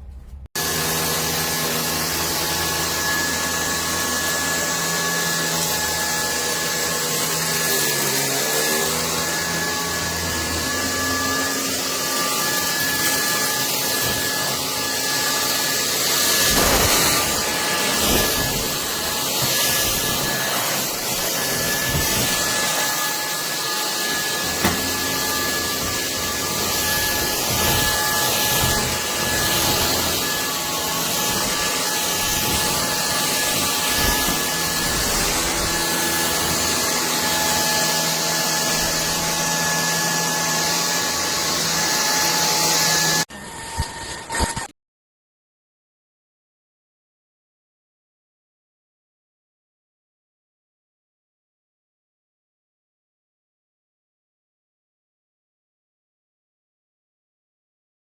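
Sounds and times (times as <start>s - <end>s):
stick vacuum motor whine: 0.6s - 44.7s.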